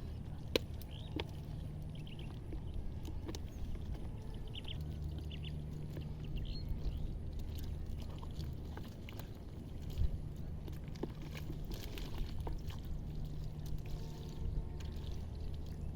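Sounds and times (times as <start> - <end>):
small birds chirping: 0.0 - 7.2
steady low hum: 0.0 - 15.9
water sloshing and trickling: 0.0 - 15.9.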